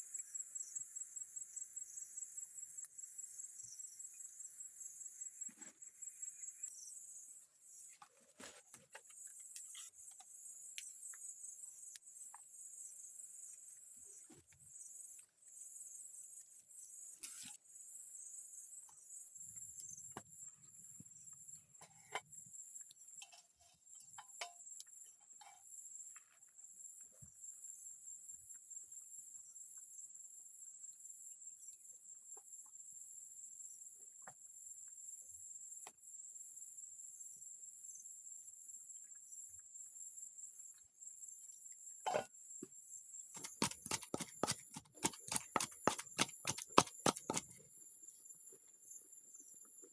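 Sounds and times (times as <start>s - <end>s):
insects trilling: 0.0s - 33.8s.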